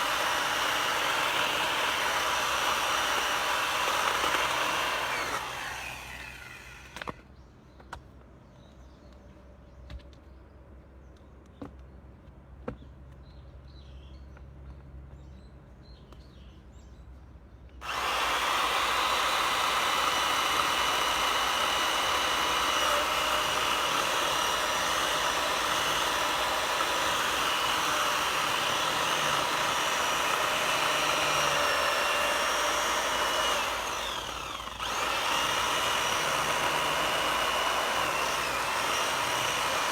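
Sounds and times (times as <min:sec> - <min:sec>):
motorized power tool running: 0:00.0 - 0:07.2, 0:17.8 - 0:39.9.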